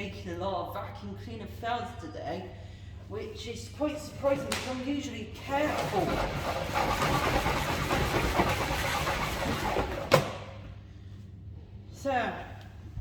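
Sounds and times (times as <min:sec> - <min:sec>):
vacuum cleaner motor running: 0:05.5 - 0:10.4.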